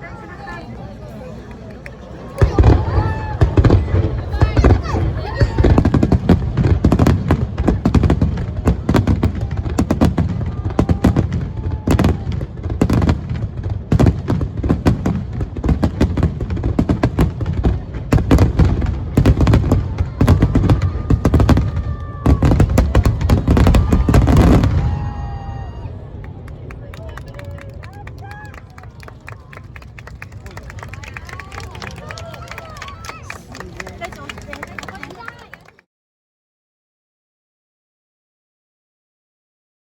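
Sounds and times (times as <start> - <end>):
fireworks booming and crackling: 2.4 - 26.7.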